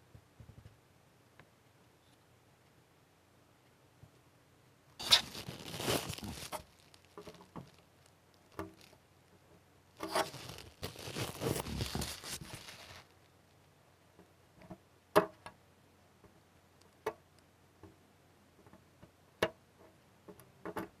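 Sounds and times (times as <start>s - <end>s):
tape ripping off plastic: 5.0s - 7.8s, 10.0s - 13.1s.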